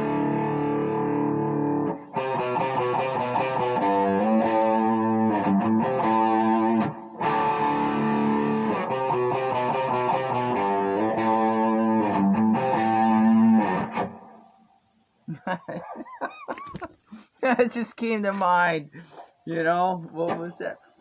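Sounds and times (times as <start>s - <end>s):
overdriven electric guitar lead: 0.0s - 14.7s.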